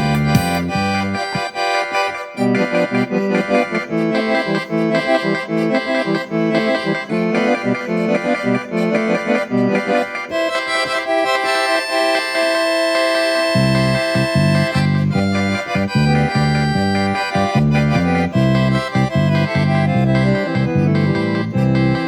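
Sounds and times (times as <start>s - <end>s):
accordion playing: 0.0s - 22.0s.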